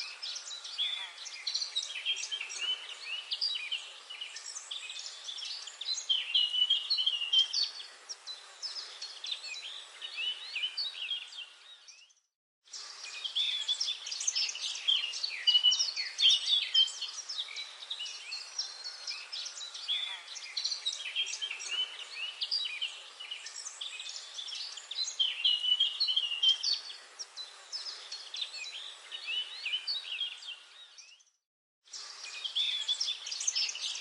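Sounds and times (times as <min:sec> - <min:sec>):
songbirds chirping and trilling: 0:00.0 - 0:34.0.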